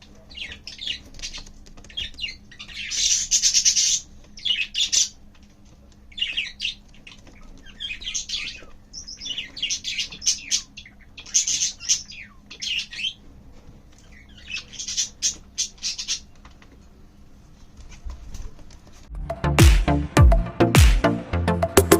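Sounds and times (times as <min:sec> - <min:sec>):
budgerigar chirping: 0:00.0 - 0:05.2, 0:06.1 - 0:13.2, 0:14.0 - 0:16.3.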